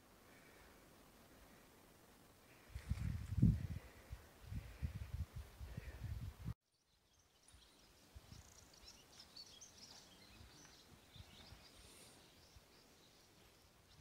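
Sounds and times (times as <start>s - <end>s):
wind rumble on microphone: 2.5s - 6.6s
distant birds chirping: 6.7s - 14.0s.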